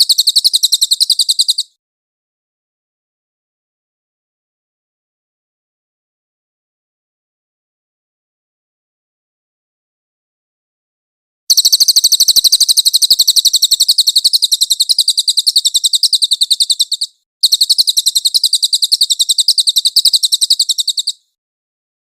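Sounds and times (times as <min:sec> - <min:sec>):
songbird high-pitched trill: 0:00.0 - 0:01.7, 0:11.5 - 0:21.2.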